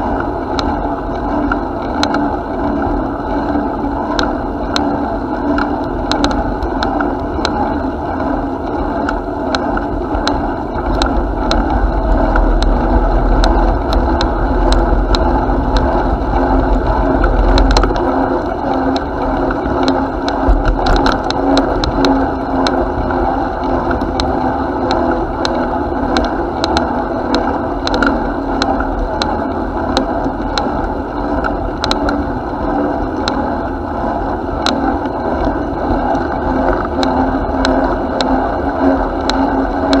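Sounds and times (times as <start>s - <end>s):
heavy low rumble: 8.6s - 38.0s.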